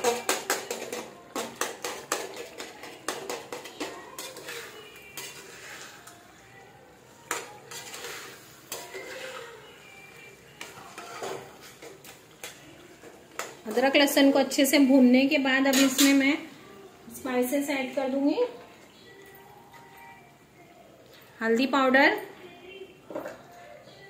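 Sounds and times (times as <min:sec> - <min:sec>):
metal spoon scraping a pan: 0:00.0 - 0:14.7, 0:15.6 - 0:16.4.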